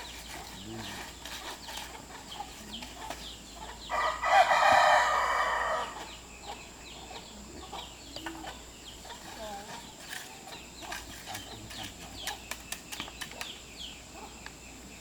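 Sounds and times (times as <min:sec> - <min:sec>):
rooster crowing: 0:03.9 - 0:06.1.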